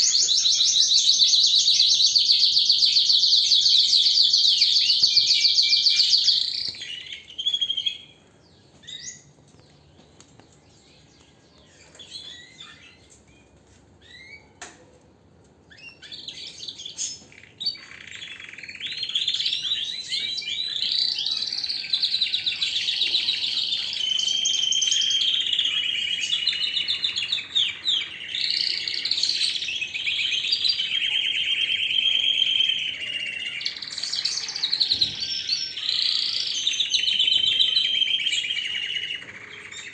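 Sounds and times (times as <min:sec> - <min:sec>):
canary singing trills: 0:00.0 - 0:14.6, 0:15.7 - 0:39.9.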